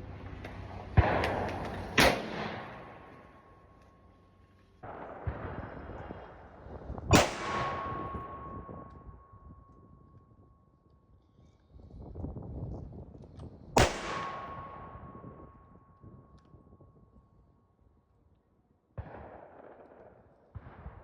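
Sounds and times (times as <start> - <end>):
rifle shots echoing: 1.0 - 3.7, 4.8 - 8.9, 13.8 - 15.3, 19.0 - 21.0
faint steady ringing: 1.5 - 5.2, 7.1 - 12.3, 13.8 - 18.4.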